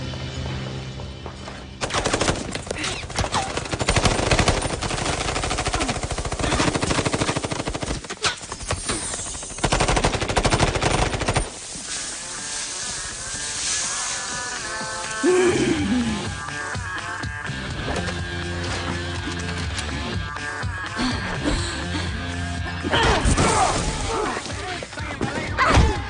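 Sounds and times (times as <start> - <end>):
rapid automatic gunfire: 1.8 - 11.6
film score music: 12.1 - 26.0.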